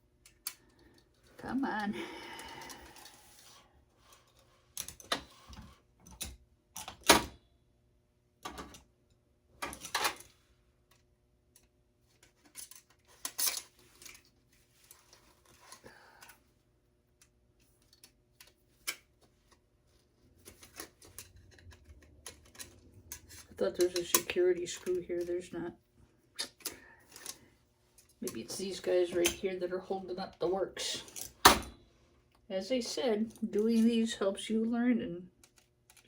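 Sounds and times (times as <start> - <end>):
screwdriver and metal parts clinking: 12.3 - 14.3, 20.4 - 25.4.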